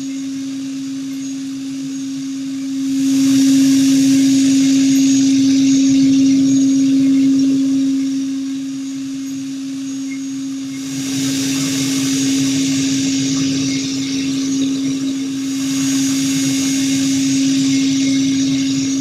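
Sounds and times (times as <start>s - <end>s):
spindle humming: 0.0s - 19.0s
cutting hiss: 10.8s - 19.0s.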